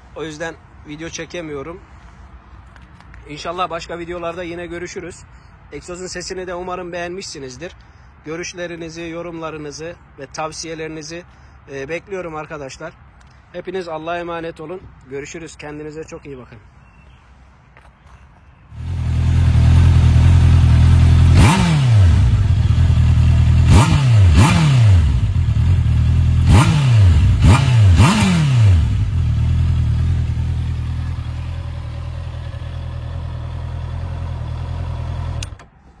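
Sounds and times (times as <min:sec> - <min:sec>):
motorcycle engine idling: 0:18.8 - 0:21.4, 0:22.1 - 0:23.8, 0:28.8 - 0:35.6.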